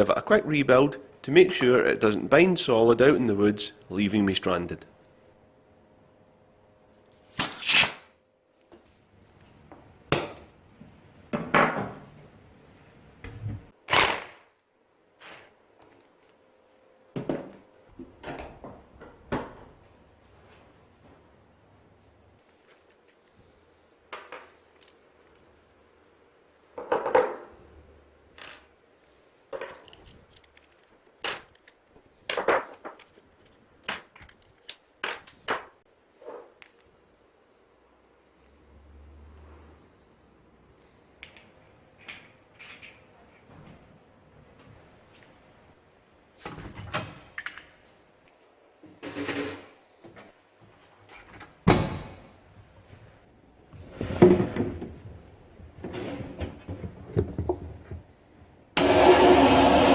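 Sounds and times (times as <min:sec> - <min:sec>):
metal parts knocking and clinking: 0:29.5 - 0:35.6.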